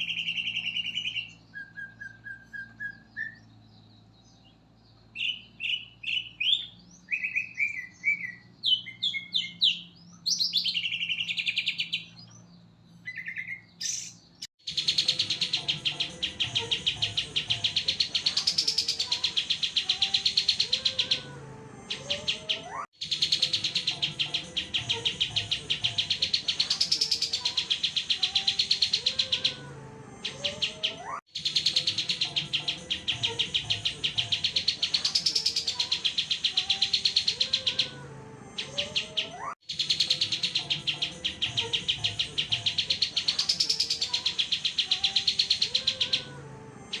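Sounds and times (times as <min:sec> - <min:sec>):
songbird chirps and trills: 0:00.0 - 0:47.0.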